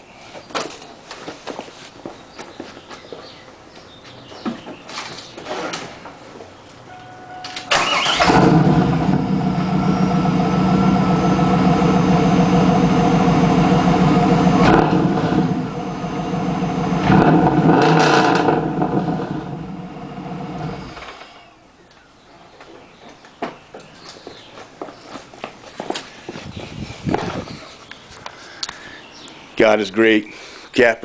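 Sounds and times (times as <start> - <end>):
car engine starting and idling: 6.9 - 21.6
car engine revving: 7.7 - 21.3.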